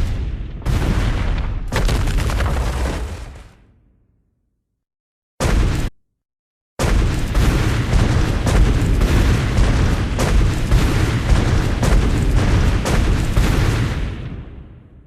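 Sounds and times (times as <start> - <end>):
explosion rumbling boom: 0.0 - 3.7, 6.8 - 15.0.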